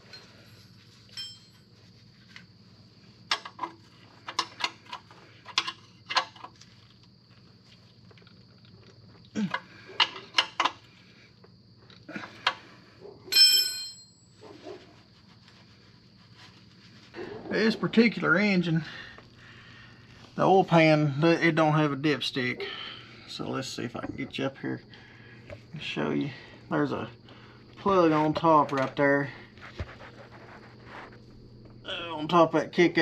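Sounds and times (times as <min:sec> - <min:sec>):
metal tools clinking: 0:01.1 - 0:01.7, 0:13.3 - 0:14.3
ringing metallic ding: 0:13.3 - 0:14.4.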